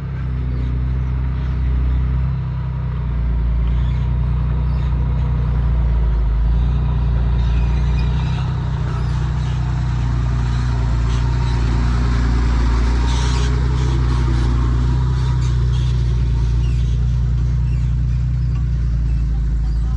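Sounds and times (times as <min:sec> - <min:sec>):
diesel engine idling: 0:00.0 - 0:19.9.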